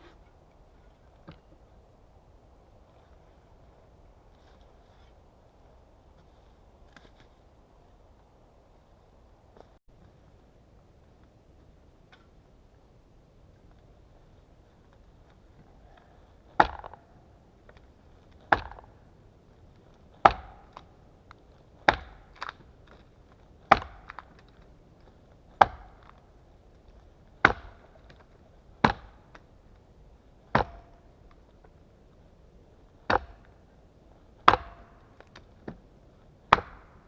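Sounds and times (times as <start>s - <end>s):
axe chopping wood: 16.6s - 17.1s, 18.4s - 19.0s, 20.2s - 20.9s, 21.8s - 23.0s, 23.6s - 24.6s, 25.6s - 26.2s, 27.4s - 28.2s, 28.8s - 29.4s, 30.5s - 31.0s, 33.1s - 33.6s, 34.4s - 35.8s, 36.5s - 37.0s.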